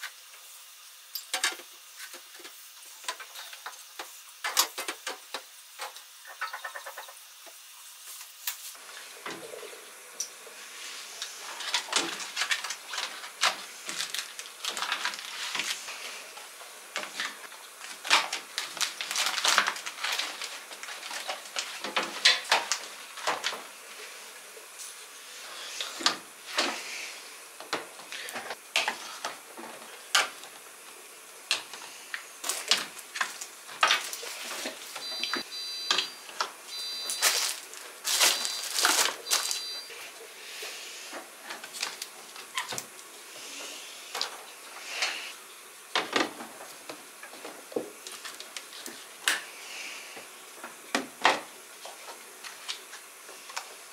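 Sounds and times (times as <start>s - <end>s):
objects knocking and rustling: 11.4s - 23.7s, 32.4s - 39.8s
faint high beeps: 35.0s - 37.4s, 38.3s - 40.0s.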